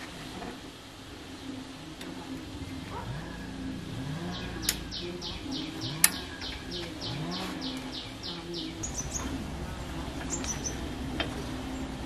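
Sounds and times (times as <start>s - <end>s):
low background hum: 0.0s - 12.0s
bird chirping: 1.3s - 12.0s
sharp click: 6.0s - 6.6s.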